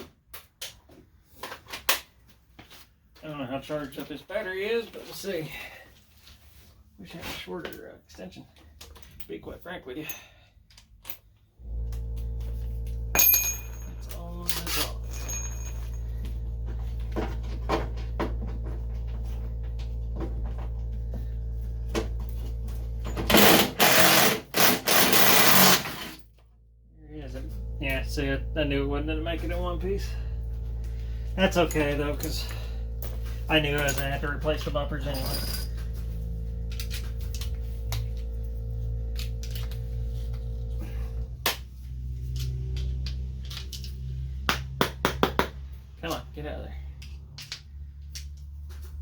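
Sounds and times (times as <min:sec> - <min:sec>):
low steady hum: 0:08.1 - 0:24.6, 0:26.2 - 0:49.0
impact wrench hammering on bolt: 0:13.1 - 0:13.9, 0:23.1 - 0:26.1, 0:44.5 - 0:45.6
metal tools clinking: 0:13.2 - 0:16.2, 0:31.4 - 0:37.6.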